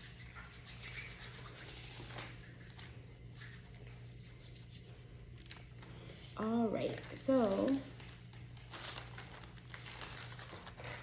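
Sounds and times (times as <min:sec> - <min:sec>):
hands rubbing together: 0:00.0 - 0:02.2, 0:03.3 - 0:05.1.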